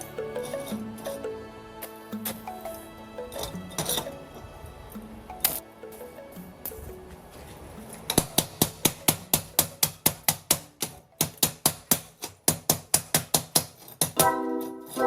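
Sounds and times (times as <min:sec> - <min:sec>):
sustained chord: 0:00.0 - 0:09.8
background music with clicking beat: 0:00.0 - 0:13.6.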